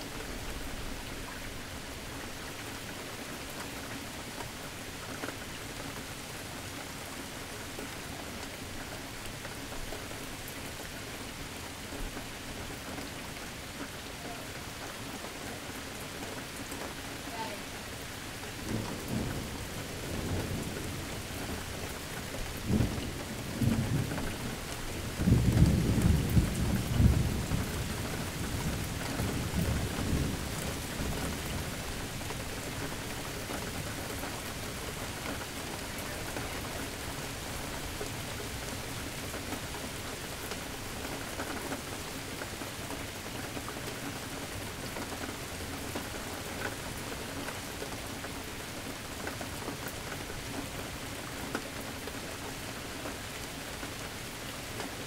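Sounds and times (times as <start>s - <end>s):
rain falling: 0.0s - 55.0s
thunder rumbling: 22.6s - 31.8s.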